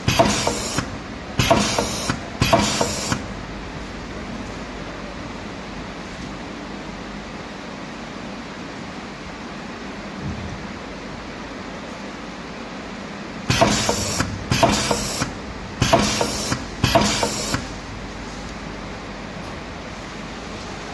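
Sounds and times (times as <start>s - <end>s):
hissing bursts of air: 0.0s - 3.3s, 13.5s - 18.6s
machine humming: 0.0s - 7.3s, 13.3s - 20.9s
machine sharp click: 13.5s - 17.7s.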